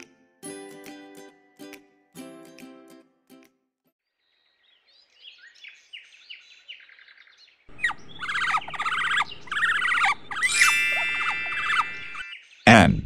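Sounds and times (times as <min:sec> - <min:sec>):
bird chirping: 0:04.1 - 0:13.0
bird whistling: 0:07.7 - 0:12.5.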